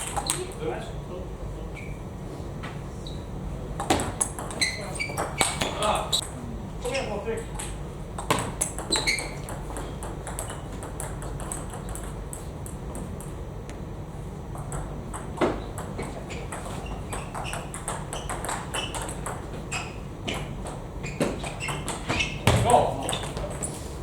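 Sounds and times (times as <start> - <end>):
table tennis balls clicking: 0.0 - 0.6, 3.8 - 6.3, 7.4 - 13.8, 14.5 - 23.8.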